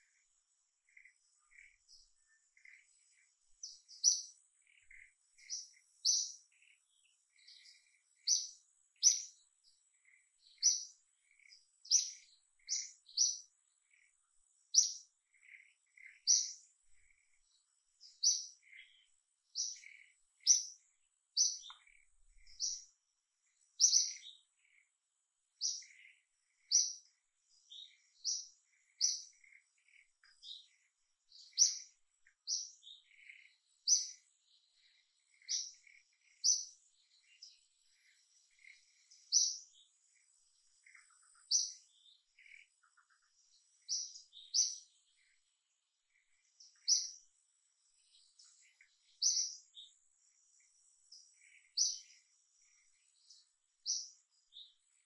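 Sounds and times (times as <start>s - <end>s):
fainter lower bird chirps: 0.0s - 55.0s
bird chirping high: 14.7s - 16.6s, 23.8s - 24.4s, 31.4s - 34.2s.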